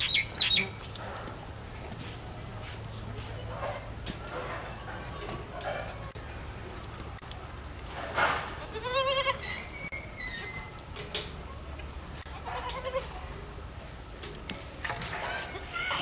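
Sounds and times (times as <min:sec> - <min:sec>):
baby goat bleating: 0:08.6 - 0:09.8, 0:12.3 - 0:13.1, 0:15.6 - 0:16.0.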